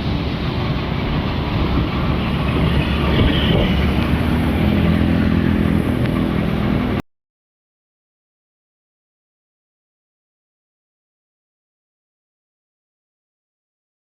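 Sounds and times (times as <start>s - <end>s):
wind and road noise on microphone: 0.0s - 7.0s.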